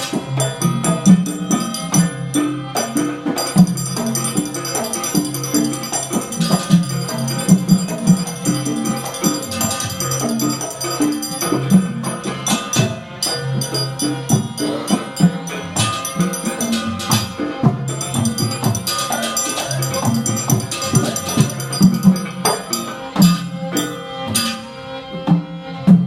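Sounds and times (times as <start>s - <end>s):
percussion strikes: 0.0s - 26.0s.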